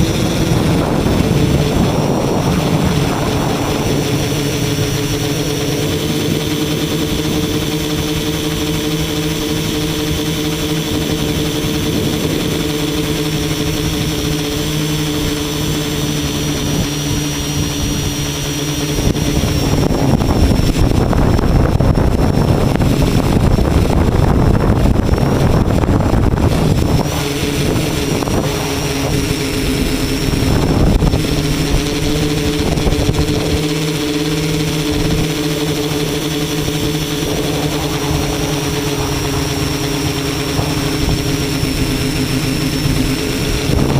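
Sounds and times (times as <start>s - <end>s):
loud rushing noise: 0.0s - 6.9s, 18.9s - 43.9s
drone motors humming: 0.0s - 43.9s.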